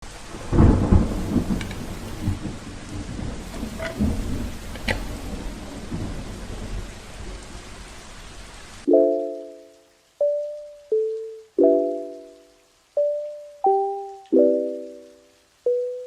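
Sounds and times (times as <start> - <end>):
rain falling: 0.0 - 16.0
rolling thunder: 0.1 - 8.1.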